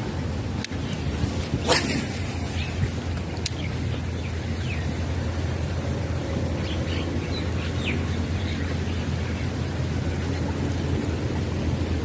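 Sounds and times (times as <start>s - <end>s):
low outdoor rumble: 0.0s - 12.0s
birds chirping: 0.7s - 5.5s, 6.1s - 10.3s.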